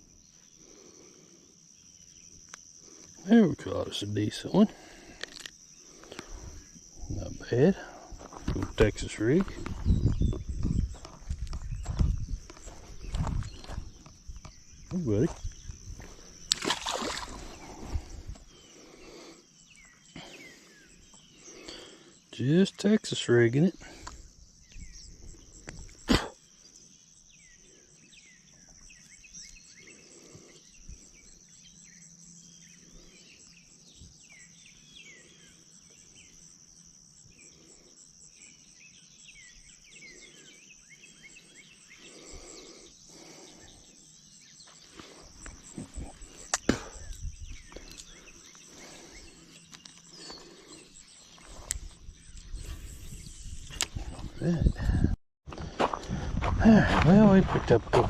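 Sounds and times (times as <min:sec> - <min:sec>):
birds chirping: 0:00.0 - 0:58.0
high insect drone: 0:00.0 - 0:58.0.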